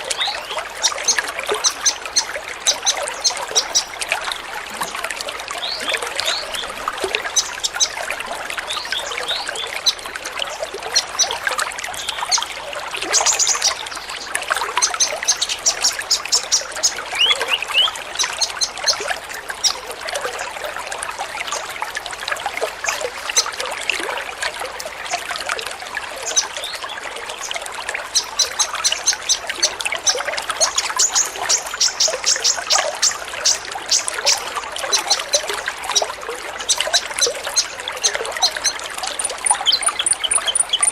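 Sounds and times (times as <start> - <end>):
birds chirping in high trills: 0.0 - 5.0, 5.6 - 11.4, 12.0 - 19.0, 28.1 - 40.9
water trickling: 0.0 - 40.9.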